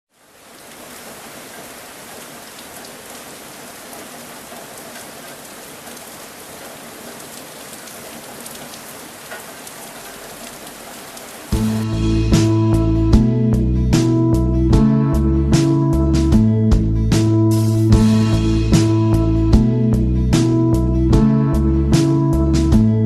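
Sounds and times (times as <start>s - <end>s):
hot oil sizzling: 11.5s - 12.0s.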